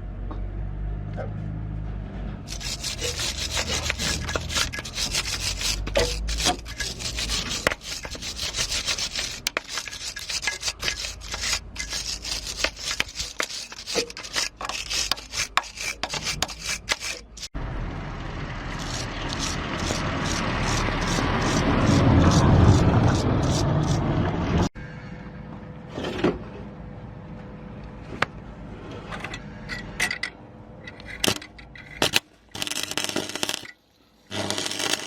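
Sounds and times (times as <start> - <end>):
arc welding crackle: 32.0 - 35.0.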